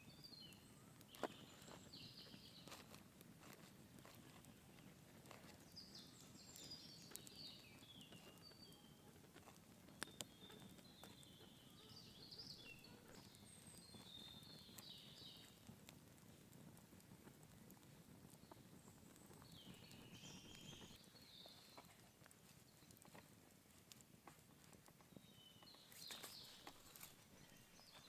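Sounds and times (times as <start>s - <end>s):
faint twittering birdsong: 0.0s - 16.5s, 17.4s - 28.0s.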